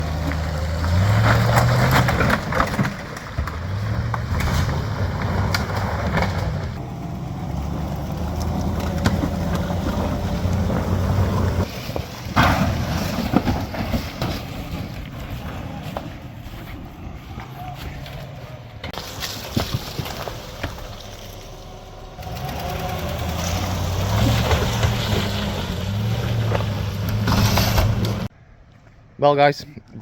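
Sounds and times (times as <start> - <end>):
pickup truck engine revving: 0.0 - 11.7, 21.4 - 28.3.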